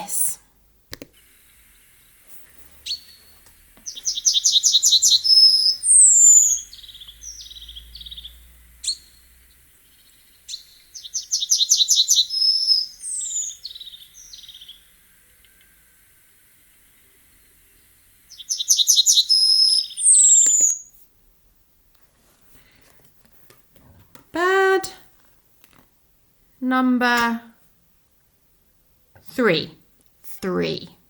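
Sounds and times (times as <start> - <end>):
nightingale singing: 2.8 - 15.7, 17.3 - 21.0.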